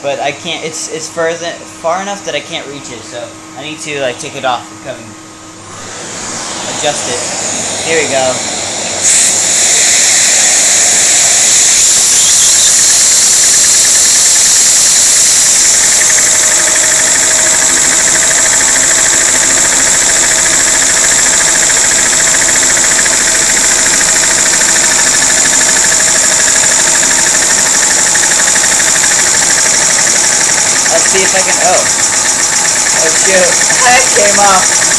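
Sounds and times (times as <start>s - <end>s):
vacuum cleaner running: 4.4s - 34.9s
steady tone: 5.4s - 34.9s
toy engine clattering: 9.0s - 34.9s.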